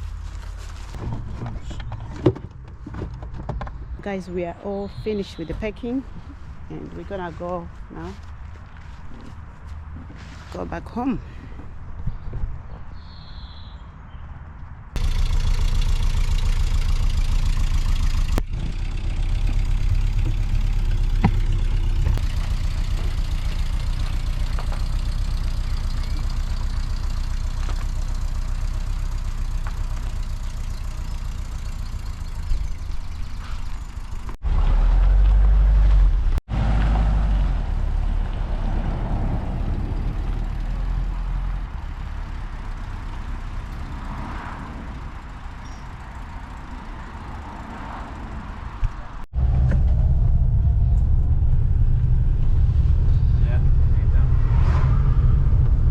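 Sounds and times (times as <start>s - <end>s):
car engine and road rumble: 0.0s - 55.9s.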